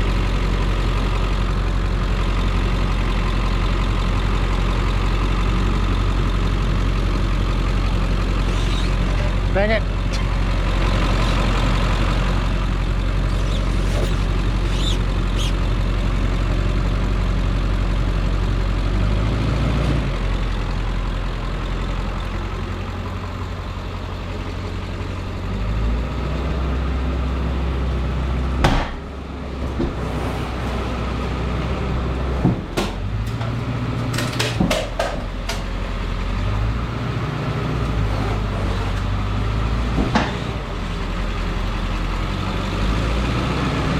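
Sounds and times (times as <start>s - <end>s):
vehicle engine idling: 0.0s - 34.1s.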